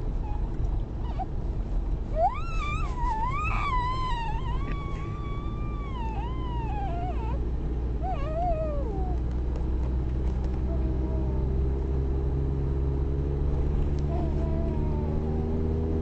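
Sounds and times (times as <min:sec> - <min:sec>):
child squealing: 0:02.2 - 0:07.4.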